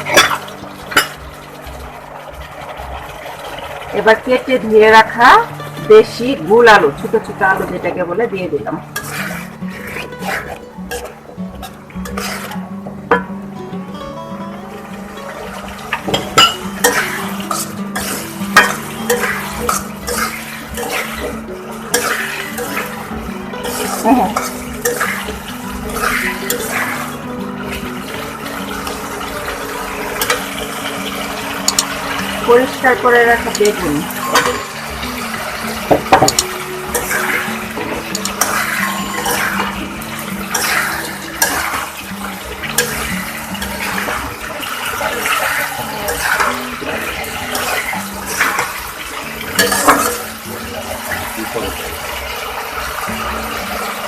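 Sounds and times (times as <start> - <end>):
vegetables sizzling: 0.0 - 54.0
metal spoon scraping a pot: 8.9 - 13.3, 16.4 - 22.9, 23.6 - 27.1, 31.7 - 34.8, 38.0 - 50.3
spatula knocking on pot: 35.8 - 37.2.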